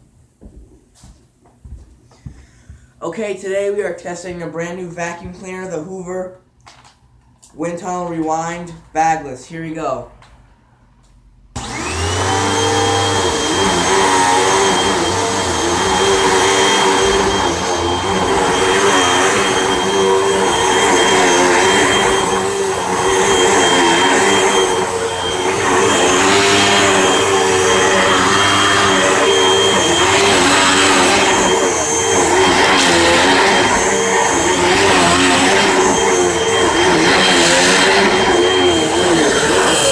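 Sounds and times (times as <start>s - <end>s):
vacuum cleaner motor whine: 11.6s - 39.9s.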